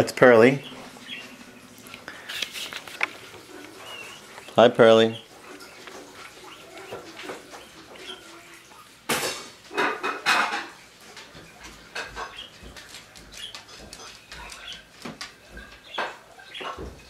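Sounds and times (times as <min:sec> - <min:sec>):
loud harsh bird noises: 0:00.0 - 0:08.7, 0:11.9 - 0:17.0
cockatiels chirping: 0:03.5 - 0:08.5, 0:12.0 - 0:14.9, 0:15.5 - 0:16.9.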